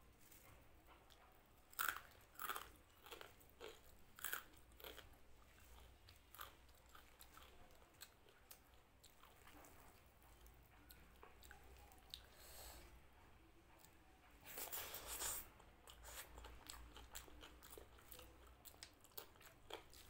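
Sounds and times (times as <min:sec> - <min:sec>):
soft chewing: 0:00.0 - 0:20.0
person crunching food: 0:01.7 - 0:09.5, 0:14.5 - 0:20.0.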